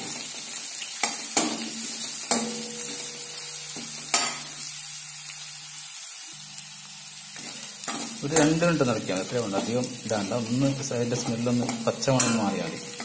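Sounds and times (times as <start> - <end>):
spices sizzling in hot oil: 0.0 - 13.0
spoon stirring and knocking pan: 1.0 - 3.1, 7.4 - 8.7, 11.1 - 13.0.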